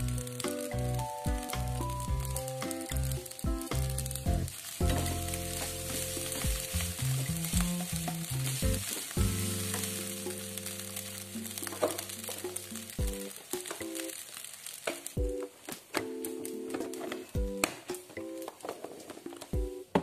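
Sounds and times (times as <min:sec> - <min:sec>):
background music: 0:00.0 - 0:14.2, 0:15.0 - 0:20.0
rice sizzling in a wok: 0:00.0 - 0:17.9
wooden spatula stirring: 0:02.0 - 0:16.0.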